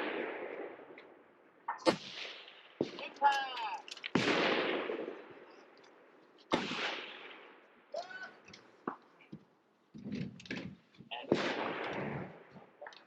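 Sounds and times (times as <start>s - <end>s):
loud rifle shots echoing: 0.0s - 7.9s, 11.2s - 12.6s.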